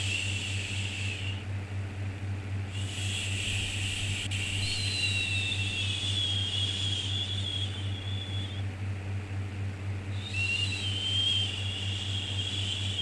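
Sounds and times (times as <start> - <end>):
shushing with slight whistle: 0.0 - 1.5, 2.7 - 8.8, 10.1 - 13.0
steady low hum: 0.0 - 13.0.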